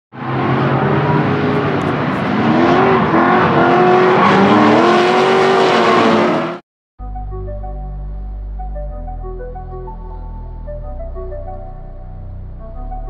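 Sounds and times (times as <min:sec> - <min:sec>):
car engines revving hard: 0:00.2 - 0:06.6.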